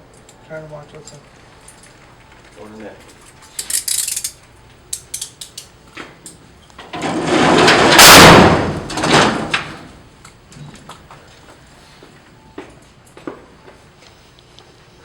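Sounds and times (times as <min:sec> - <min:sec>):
metallic clicks and clanks: 0:03.0 - 0:09.7
heavy cell door sliding shut: 0:06.9 - 0:10.0.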